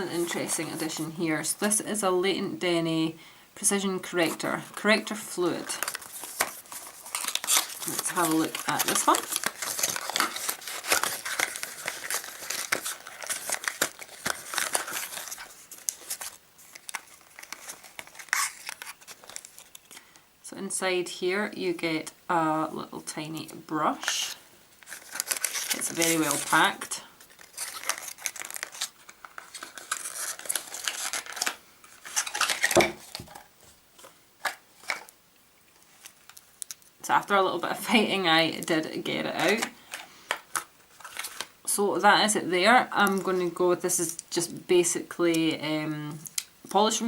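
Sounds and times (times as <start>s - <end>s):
packaging crinkling and rustling: 5.0s - 20.2s, 24.3s - 35.2s, 35.8s - 37.0s, 39.3s - 41.7s.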